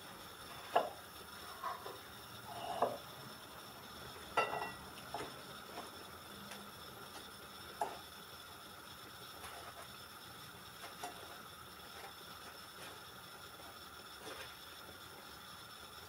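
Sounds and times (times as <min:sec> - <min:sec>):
dishes and utensils clinking: 0:04.4 - 0:05.3.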